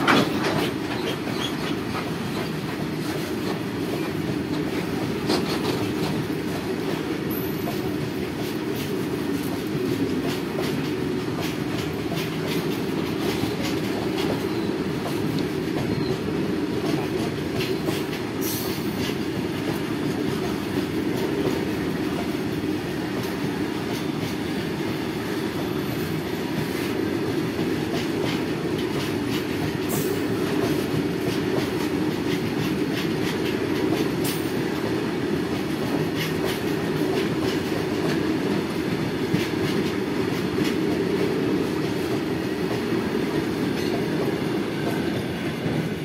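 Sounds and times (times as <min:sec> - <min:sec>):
clicking over rail joints: 0:00.0 - 0:06.6
heavy rumble of train wheels: 0:00.0 - 0:46.0.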